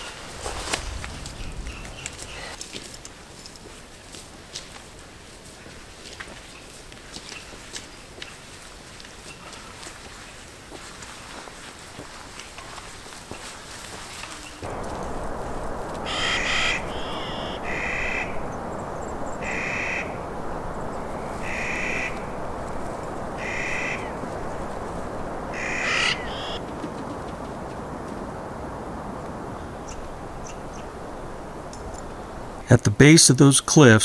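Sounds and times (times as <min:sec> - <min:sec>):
steady background hiss: 0:00.0 - 0:34.0
bird calling: 0:14.2 - 0:26.6, 0:29.6 - 0:32.4.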